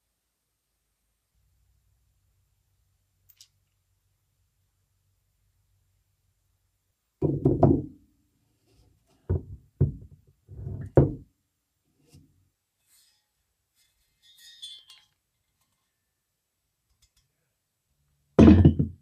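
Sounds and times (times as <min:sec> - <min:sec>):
knocks in workshop: 0:07.2 - 0:07.9, 0:18.4 - 0:19.0.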